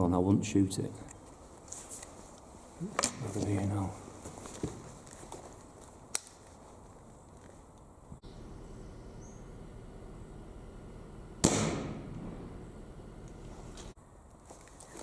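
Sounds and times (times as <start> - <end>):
air rifle shot: 11.4 - 12.6.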